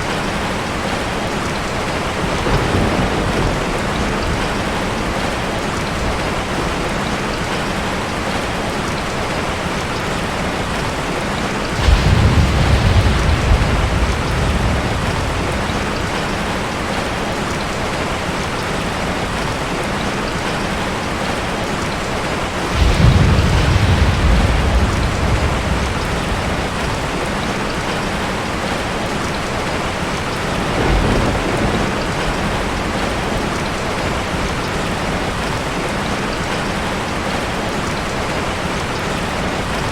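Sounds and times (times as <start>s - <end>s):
thunder rumbling: 0.0s - 8.4s, 10.6s - 18.5s, 22.3s - 37.4s
heavy rain falling: 0.0s - 39.9s.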